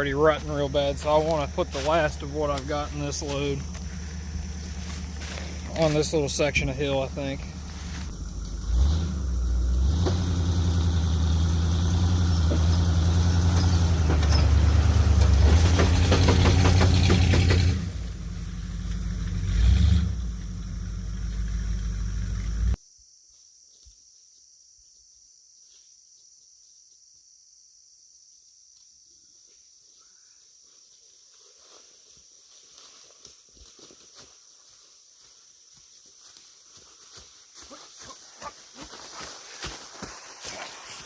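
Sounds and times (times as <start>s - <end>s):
engine running hard: 0.5s - 22.8s.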